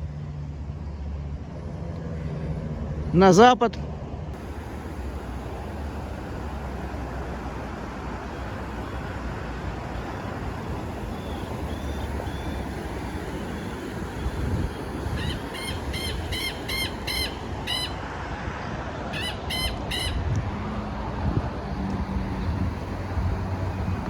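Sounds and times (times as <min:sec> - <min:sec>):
distant city traffic: 0:00.0 - 0:24.0
faint high chirps: 0:04.4 - 0:18.0.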